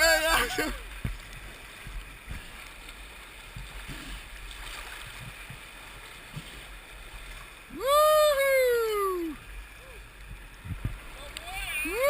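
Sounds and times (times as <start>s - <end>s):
river water rushing: 0.0s - 12.0s
soft thumps: 1.0s - 2.6s.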